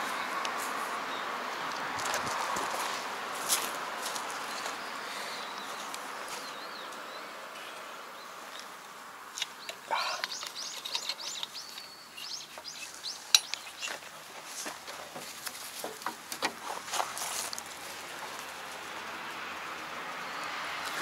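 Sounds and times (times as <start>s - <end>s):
bird chirping: 4.4s - 8.8s, 9.4s - 14.1s
metal parts clicking and knocking: 10.2s - 11.9s, 12.6s - 14.0s.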